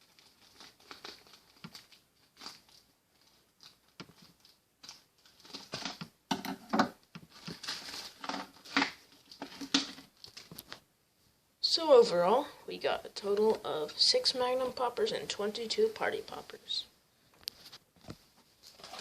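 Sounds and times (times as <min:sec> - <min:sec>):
plastic bag rustling: 0:00.0 - 0:06.1, 0:07.2 - 0:10.8, 0:17.6 - 0:19.0
plastic party poppers clattering: 0:04.9 - 0:10.8, 0:18.7 - 0:19.0.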